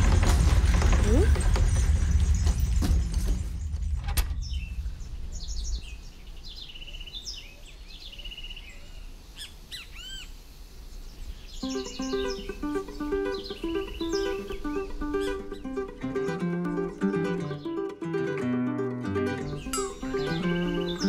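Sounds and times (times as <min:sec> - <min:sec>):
birds chirping and trilling: 0:00.0 - 0:21.0
plucked-string music: 0:11.6 - 0:21.0.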